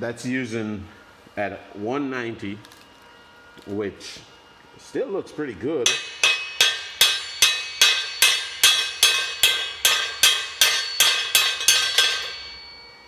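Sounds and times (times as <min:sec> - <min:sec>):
chipping hammer striking metal: 0:05.9 - 0:13.0.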